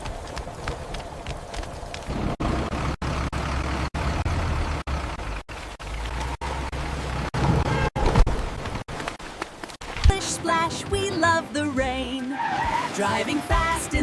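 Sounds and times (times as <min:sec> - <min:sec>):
rumbling vehicle engine: 0:00.0 - 0:09.1.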